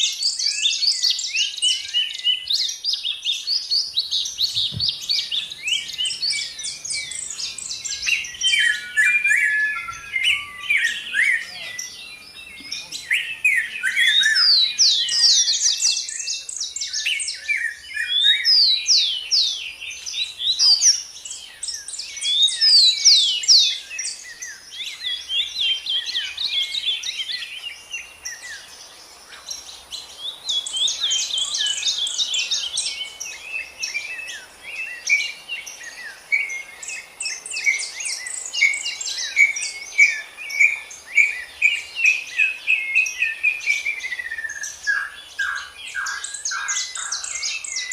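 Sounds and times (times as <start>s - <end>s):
faint high hiss: 0.0s - 47.9s
songbirds chirping: 0.0s - 47.9s.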